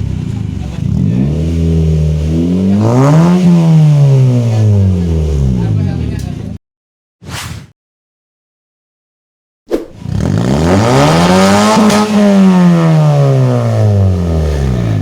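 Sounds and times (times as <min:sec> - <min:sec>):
car engine revving: 0:01.0 - 0:05.5, 0:10.0 - 0:15.0.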